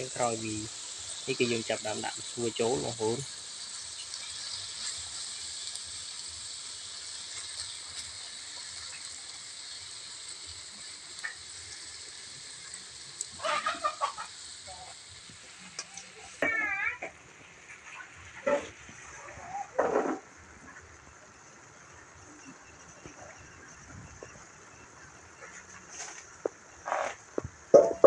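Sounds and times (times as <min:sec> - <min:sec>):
noodles sizzling in oil: 0:00.0 - 0:28.0
short high calls: 0:16.4 - 0:17.1.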